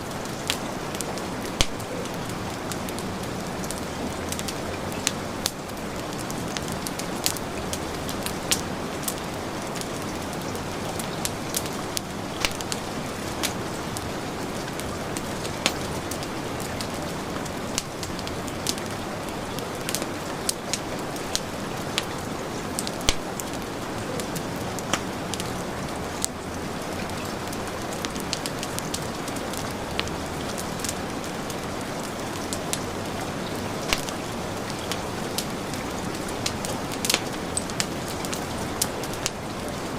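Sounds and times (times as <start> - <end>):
heavy rain hissing: 0.0 - 39.9
wood fire crackling and popping: 0.0 - 39.9.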